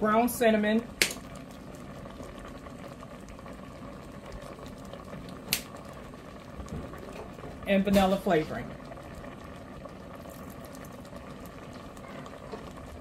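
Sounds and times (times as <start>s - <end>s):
syrup bubbling in a pot: 0.0s - 13.0s.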